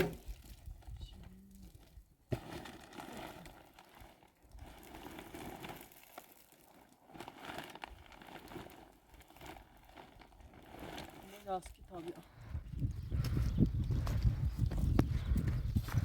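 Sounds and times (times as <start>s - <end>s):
plastic sheeting crinkling: 0.0s - 12.2s.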